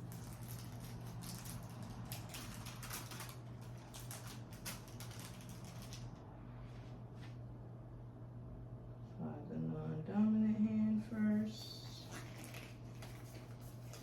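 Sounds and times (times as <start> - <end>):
packaging crinkling: 0.0 - 6.2, 11.8 - 14.0
steady low hum: 0.0 - 14.0.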